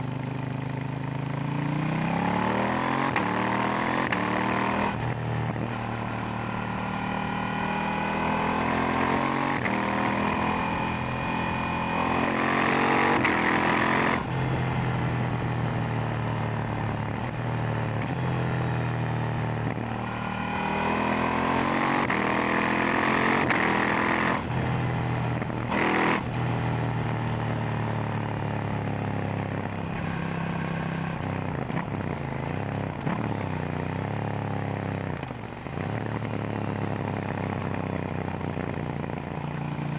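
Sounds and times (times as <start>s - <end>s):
motorcycle engine revving: 0.8s - 16.2s, 16.8s - 27.8s.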